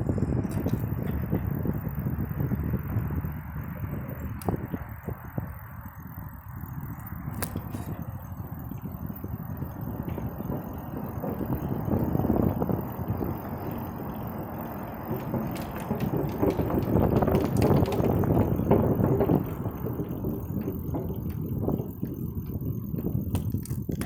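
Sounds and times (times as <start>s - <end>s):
bicycle clicks and rattles: 0.0s - 24.0s
bicycle riding rumble: 0.0s - 24.0s.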